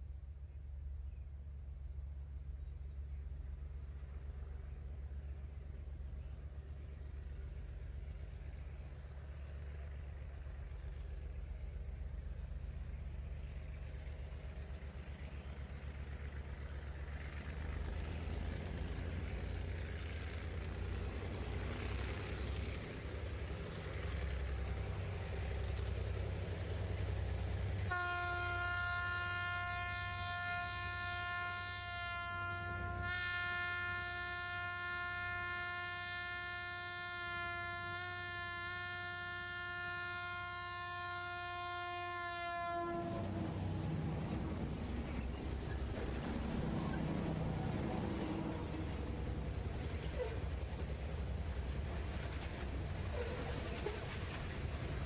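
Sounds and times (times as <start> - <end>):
diesel locomotives rumbling: 0.0 - 55.0
locomotive air horn chord: 27.8 - 44.7.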